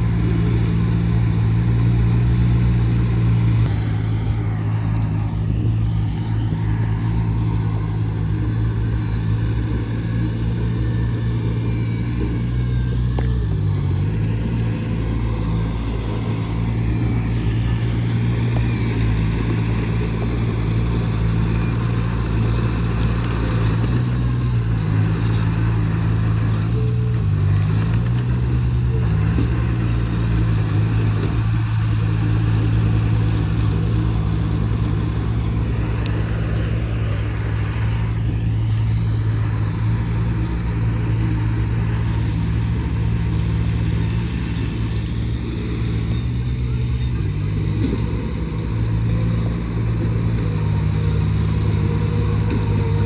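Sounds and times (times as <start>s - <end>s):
diesel engine of earthmoving machine: 0.0s - 53.0s.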